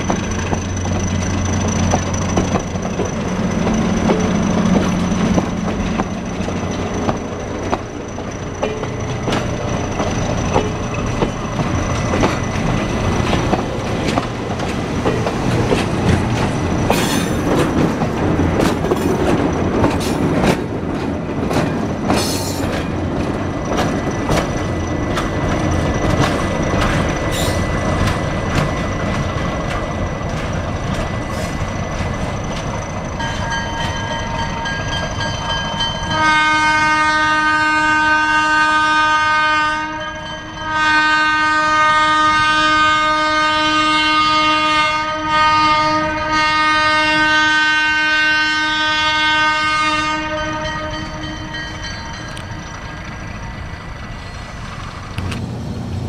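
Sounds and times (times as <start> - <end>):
wheel squeals: 0.0 - 14.1
train wheels clicking over rail joints: 0.0 - 36.2
diesel locomotive: 0.0 - 56.0
locomotive air horn: 36.1 - 51.4.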